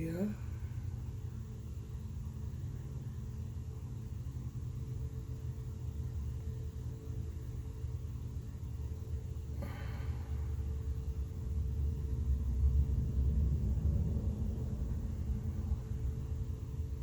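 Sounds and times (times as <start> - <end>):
low hum and rumble: 0.0 - 17.0.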